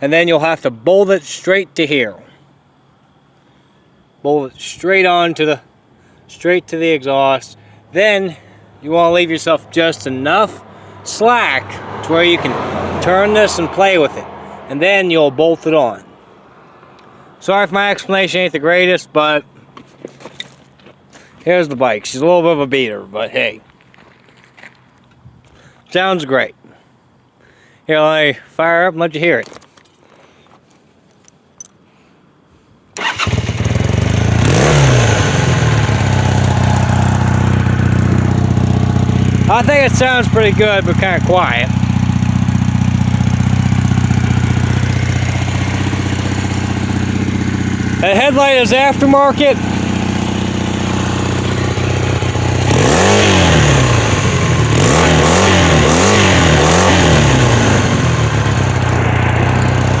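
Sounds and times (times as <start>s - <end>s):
motorcycle engine idling: 33.0s - 60.0s.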